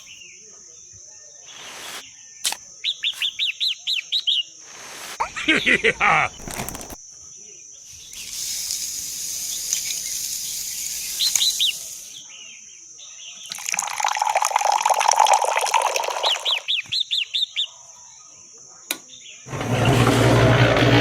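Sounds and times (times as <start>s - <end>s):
short bird chirps: 1.3s - 5.8s, 7.8s - 12.4s, 16.2s - 17.7s
water rushing or spraying: 1.5s - 2.0s, 4.7s - 5.2s.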